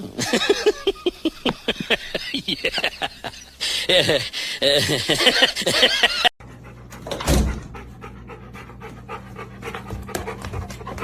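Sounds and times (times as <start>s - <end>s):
dog panting rapidly: 6.4s - 11.0s.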